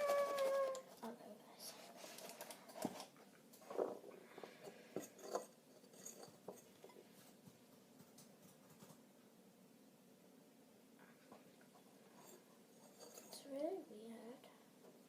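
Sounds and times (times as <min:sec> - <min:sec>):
utensil clinking mixing bowl: 0:04.7 - 0:07.0.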